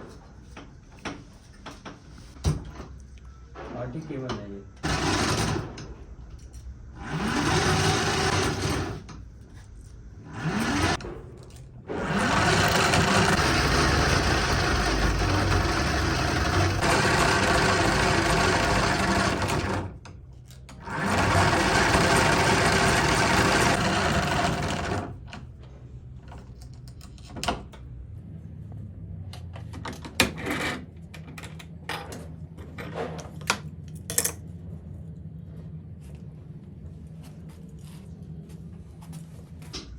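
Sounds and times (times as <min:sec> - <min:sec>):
low machine hum: 0:00.0 - 0:39.9
machine rattling: 0:04.8 - 0:05.9, 0:07.0 - 0:09.1, 0:10.3 - 0:11.1, 0:11.9 - 0:20.0, 0:20.8 - 0:25.3.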